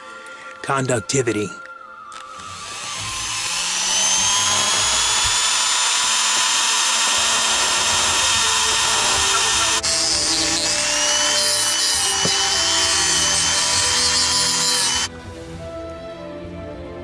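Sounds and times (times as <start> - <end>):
small power tool whining on metal: 2.2 - 15.1.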